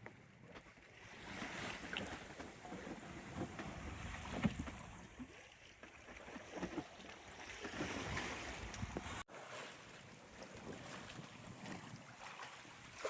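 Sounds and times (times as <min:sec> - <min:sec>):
water splashing along a hull: 0:00.0 - 0:13.0
wind on microphone: 0:01.2 - 0:05.2, 0:07.6 - 0:09.2.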